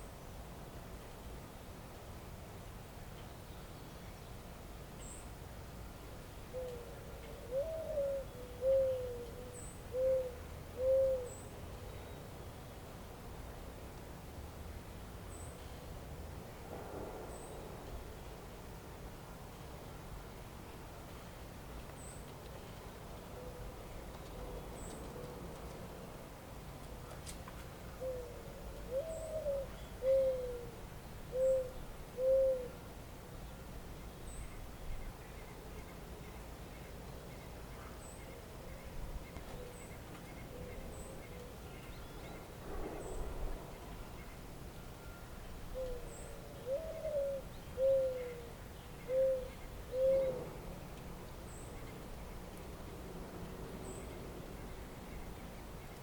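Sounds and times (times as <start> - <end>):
faint outdoor hiss: 0.0 - 56.0
owl hooting: 6.5 - 11.5, 28.0 - 32.8, 45.7 - 50.6
pigeon cooing: 6.6 - 11.4, 28.0 - 32.8, 45.8 - 48.5, 49.1 - 50.6.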